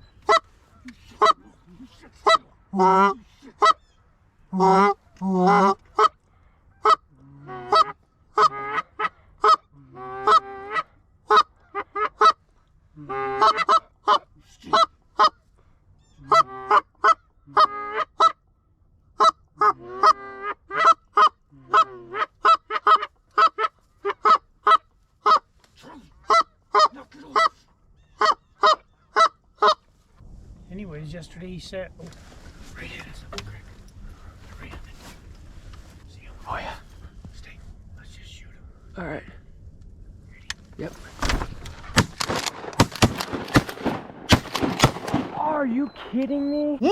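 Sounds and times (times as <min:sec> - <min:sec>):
geese honking: 0:00.0 - 0:15.5, 0:16.2 - 0:18.4, 0:19.2 - 0:25.5, 0:26.2 - 0:29.9.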